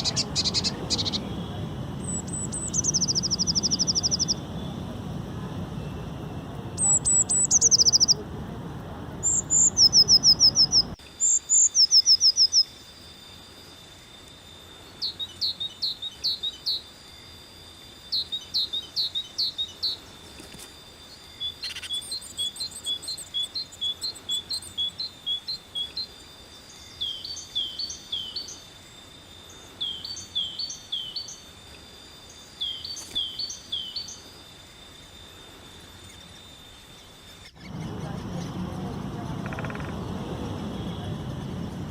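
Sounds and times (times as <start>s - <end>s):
birds chirping: 0.0s - 12.7s, 35.8s - 41.9s.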